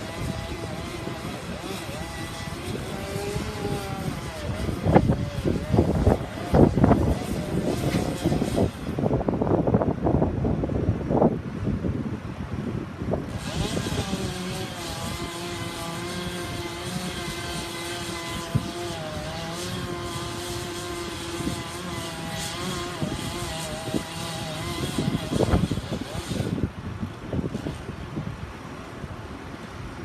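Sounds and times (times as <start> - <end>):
engine running: 0.0 - 9.1, 13.2 - 26.7
gusty wind noise: 0.0 - 30.0.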